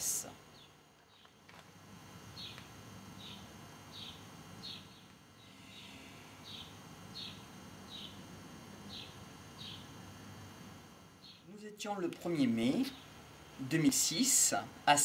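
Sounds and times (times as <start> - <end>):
bird chirping: 2.3 - 8.2, 8.9 - 9.9, 11.2 - 11.5.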